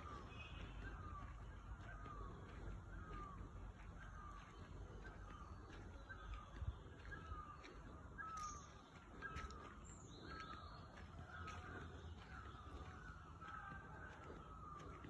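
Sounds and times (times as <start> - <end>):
faint birds calling: 0.0 - 15.0.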